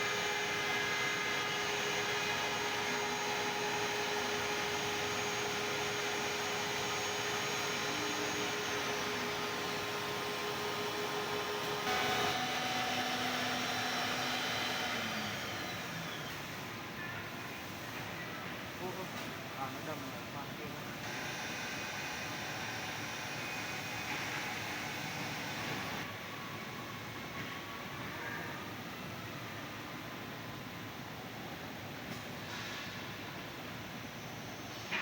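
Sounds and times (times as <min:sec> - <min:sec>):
drilling machine motor whining: 0:00.0 - 0:16.4, 0:21.0 - 0:26.0.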